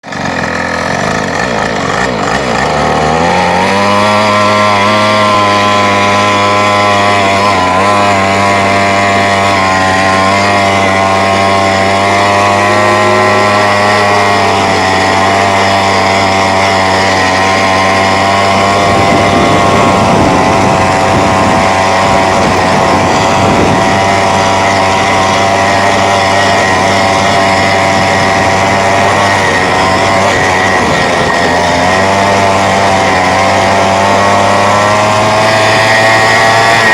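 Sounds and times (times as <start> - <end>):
two-stroke quad engine running: 0.0 - 36.9.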